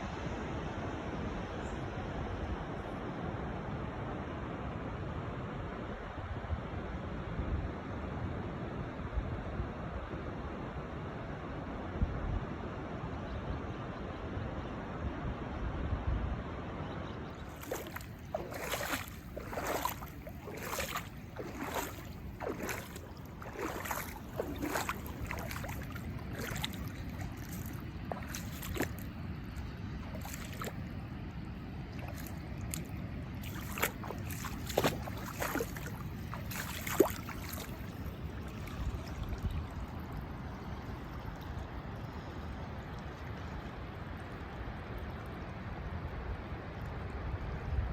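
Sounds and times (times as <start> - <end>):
wind: 0.0 - 47.9
falling water rushing: 17.6 - 29.1.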